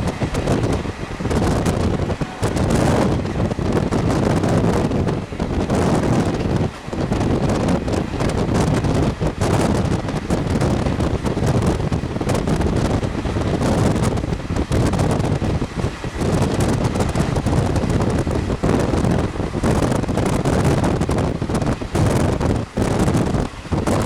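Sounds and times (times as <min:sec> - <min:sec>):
train running noise: 0:00.0 - 0:24.0
wind buffeting microphone: 0:00.0 - 0:24.0.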